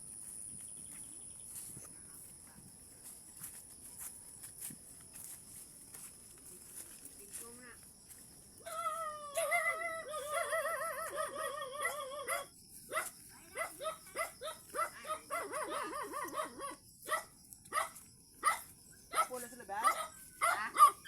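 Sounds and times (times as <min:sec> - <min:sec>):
dog yipping: 0:08.8 - 0:21.0.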